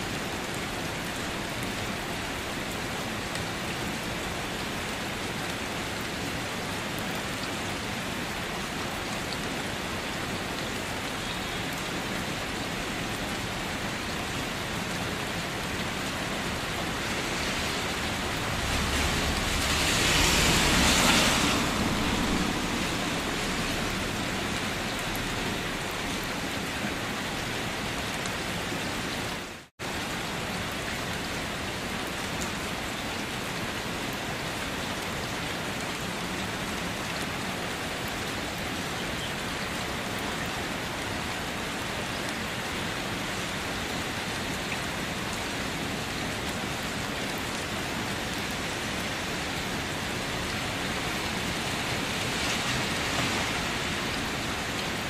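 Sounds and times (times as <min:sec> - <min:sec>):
steady rain falling: 0:00.0 - 0:55.0
low rumble: 0:17.8 - 0:24.2.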